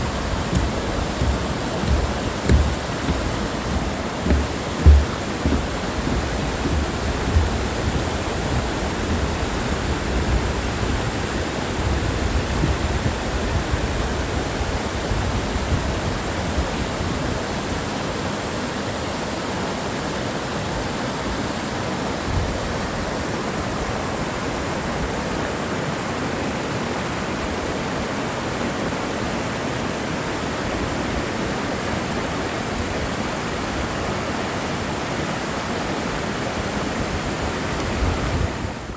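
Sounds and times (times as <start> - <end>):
stream rushing: 0.0 - 9.8.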